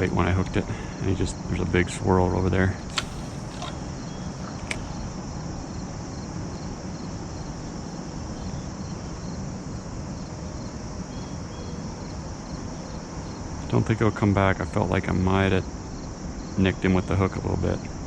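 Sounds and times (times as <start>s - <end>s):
crickets chirping: 0.0s - 18.0s
sharp click: 2.9s - 5.0s.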